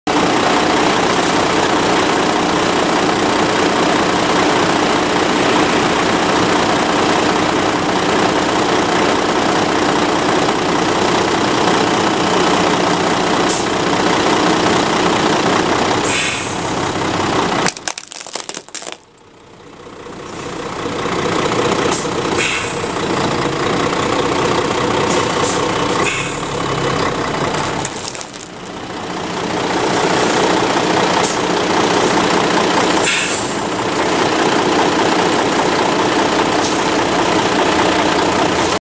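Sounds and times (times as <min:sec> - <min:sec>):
truck engine running: 0:00.1 - 0:38.8
plastic cracking: 0:17.6 - 0:19.0, 0:27.8 - 0:28.7
tyres crushing plastic: 0:17.6 - 0:19.1, 0:27.7 - 0:28.8.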